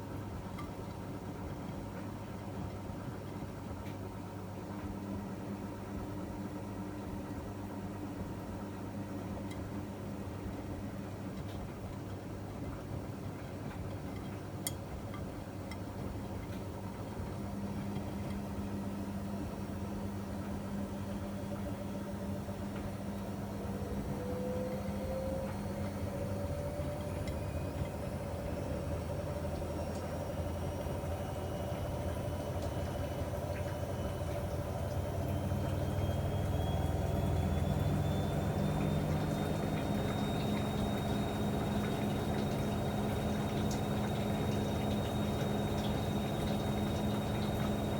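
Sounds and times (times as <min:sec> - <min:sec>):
washing machine humming: 0:00.0 - 0:47.9
motor whine rising in pitch: 0:20.6 - 0:47.9.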